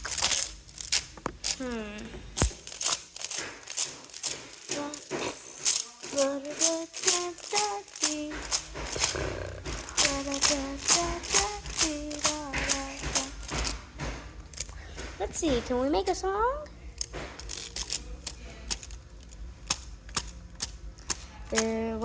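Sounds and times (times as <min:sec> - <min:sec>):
person humming a tune: 0:01.4 - 0:02.6, 0:04.7 - 0:13.7
rattling beat: 0:02.4 - 0:14.3.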